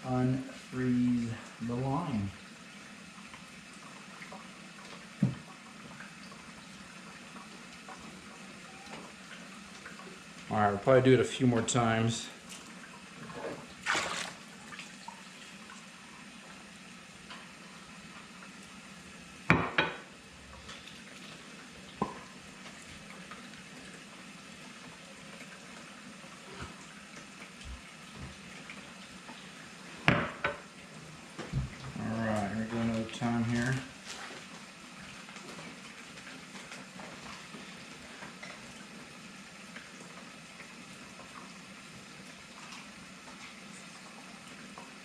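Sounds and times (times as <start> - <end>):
faint steady hiss: 0.0 - 13.6
water trickling and gurgling: 12.4 - 16.6.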